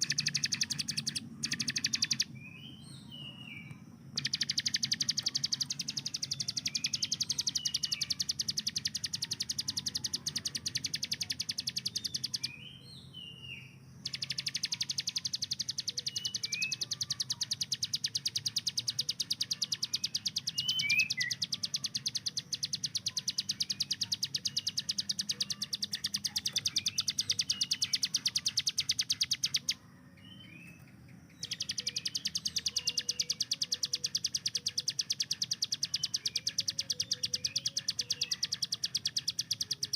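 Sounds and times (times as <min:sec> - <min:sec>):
bird rapid ticking song: 0:00.0 - 0:13.4, 0:14.0 - 0:39.9
short whistled bird chirps: 0:14.1 - 0:29.7.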